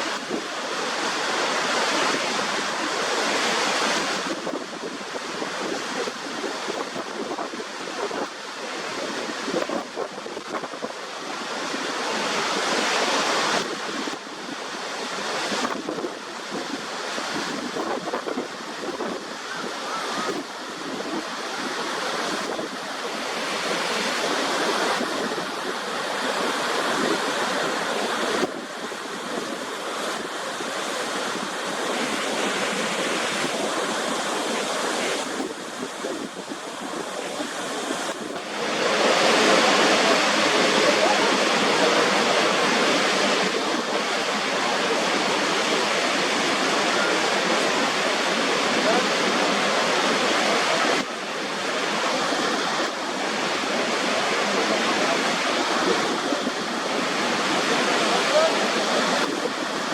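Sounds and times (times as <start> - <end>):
waterfall rushing: 0.0 - 59.9
wind buffeting microphone: 15.3 - 45.8.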